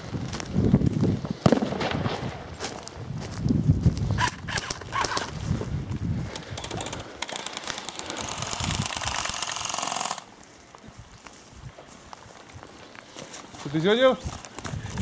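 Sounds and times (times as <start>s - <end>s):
rustling through brush: 0.0s - 15.0s.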